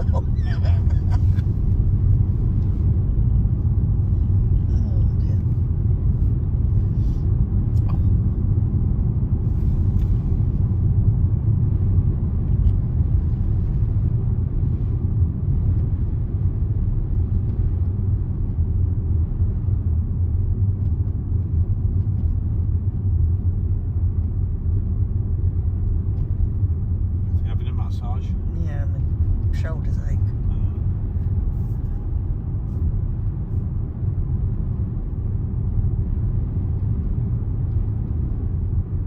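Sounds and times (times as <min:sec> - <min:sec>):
tyre noise on road: 0:00.0 - 0:04.7
car engine drone: 0:00.0 - 0:39.0.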